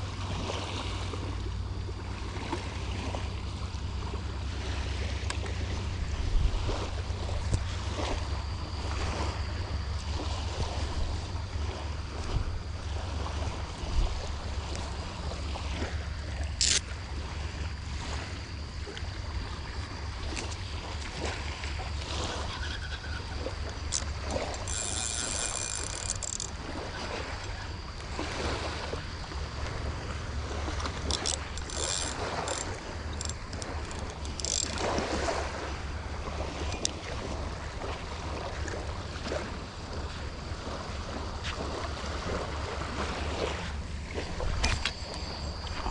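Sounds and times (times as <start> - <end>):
scattered clicks: 16.5 - 16.9, 23.7 - 26.6, 30.8 - 34.9.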